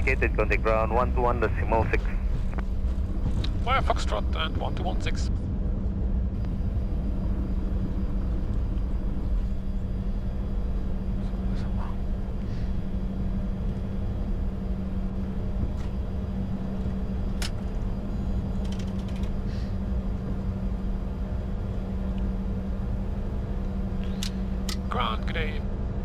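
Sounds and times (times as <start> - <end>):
jet taxiing rumble: 0.0 - 26.0.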